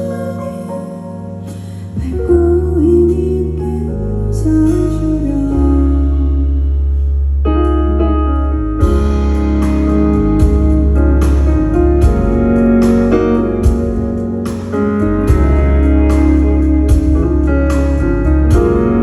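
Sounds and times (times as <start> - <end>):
electric keyboard: 0.0 - 19.0
live band playing instrumental: 7.6 - 19.0.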